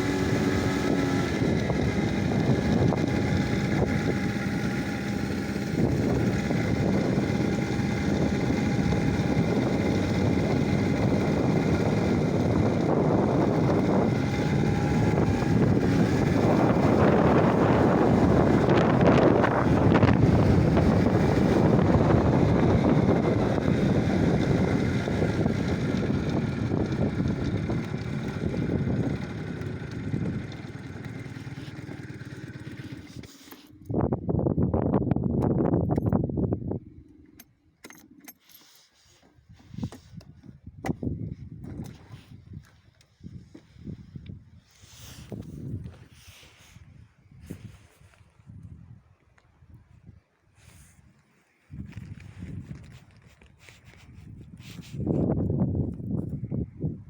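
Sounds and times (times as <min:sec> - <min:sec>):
wind buffeting microphone: 0:00.0 - 0:33.2, 0:33.8 - 0:37.1, 0:39.5 - 0:57.0
motor running: 0:00.0 - 0:34.0.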